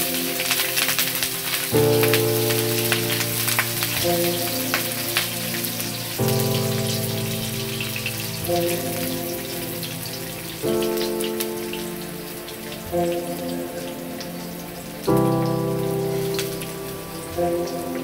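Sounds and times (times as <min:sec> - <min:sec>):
food sizzling in hot oil: 0:00.0 - 0:12.8
background music with held chords: 0:00.0 - 0:18.0.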